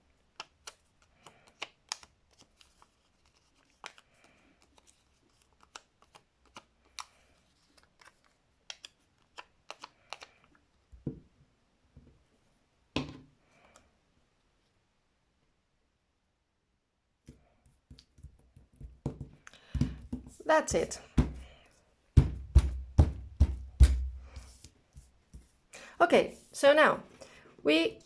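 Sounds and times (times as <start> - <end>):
paper and card rustling: 0.6 - 10.5
heavy knocks on tabletop: 22.2 - 24.1.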